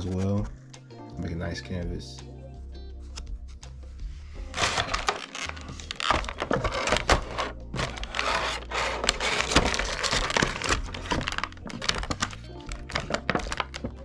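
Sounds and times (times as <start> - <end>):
packaging crinkling and rustling: 4.5 - 14.0.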